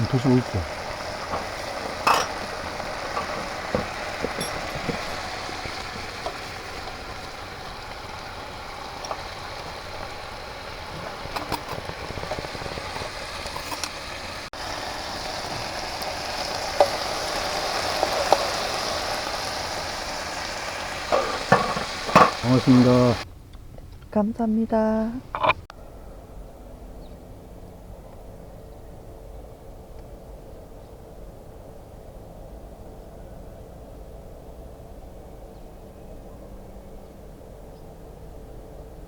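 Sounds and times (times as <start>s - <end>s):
beef sizzling on a grill pan: 0.0s - 23.2s.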